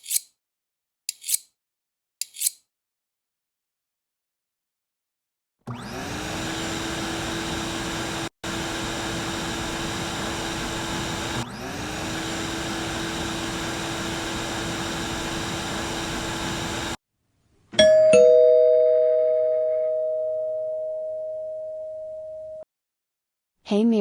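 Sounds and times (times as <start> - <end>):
electric motor whining and humming: 5.7 - 17.0.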